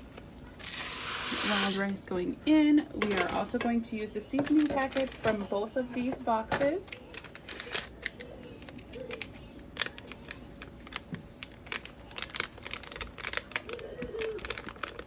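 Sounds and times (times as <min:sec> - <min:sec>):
paper packaging crinkling and tearing: 0:03.0 - 0:03.6, 0:04.4 - 0:05.5, 0:06.9 - 0:15.0.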